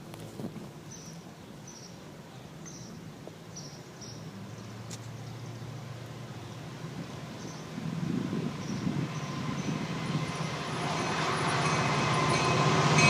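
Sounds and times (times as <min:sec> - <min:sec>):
train rumble: 0:05.8 - 0:13.0.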